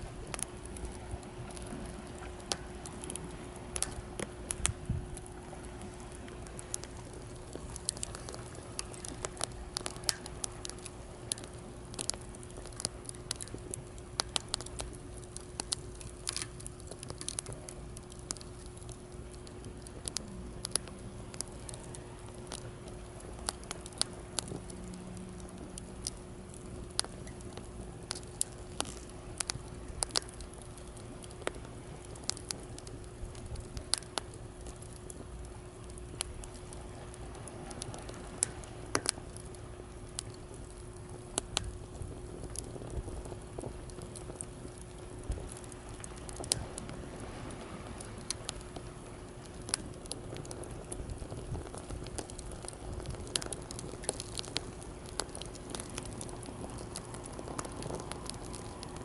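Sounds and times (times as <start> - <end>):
campfire crackling and popping: 0.0 - 59.0
sea waves: 46.8 - 48.4.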